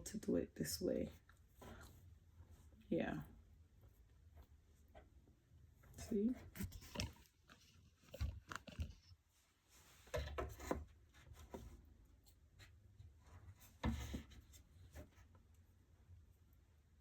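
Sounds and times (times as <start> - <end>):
light knocks and scrapes on wood: 9.9 - 11.9, 13.2 - 15.2.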